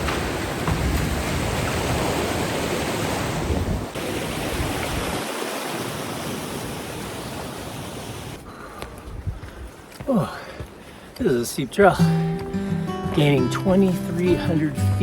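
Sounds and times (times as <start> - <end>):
fast river rushing: 0.0 - 8.4.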